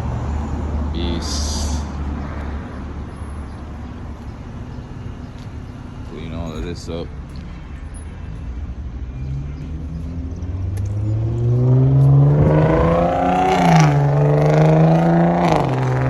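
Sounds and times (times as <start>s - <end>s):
vehicle engine accelerating: 9.1s - 16.0s.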